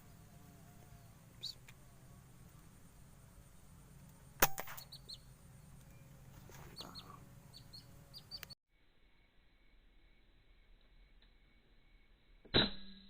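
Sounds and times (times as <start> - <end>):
high bird chirps: 0.2 - 1.9, 4.7 - 8.6
air rifle shot: 4.4 - 5.0.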